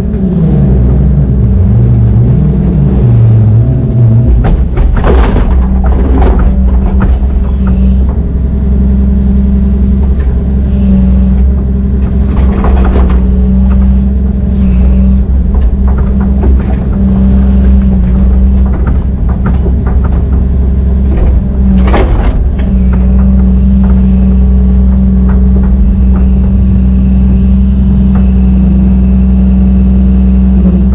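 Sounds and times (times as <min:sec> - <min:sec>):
diesel engine running under load: 0:00.0 - 0:30.9
sharp metallic knocks: 0:04.1 - 0:08.4.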